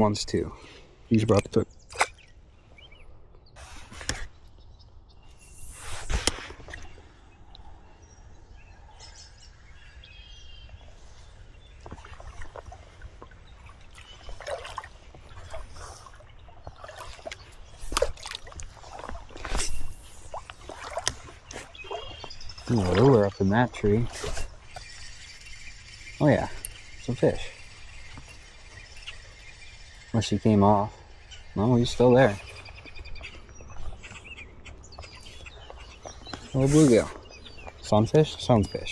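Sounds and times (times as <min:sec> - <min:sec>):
river water sloshing and splashing: 0:10.7 - 0:29.4
faint bird calls: 0:18.8 - 0:38.9.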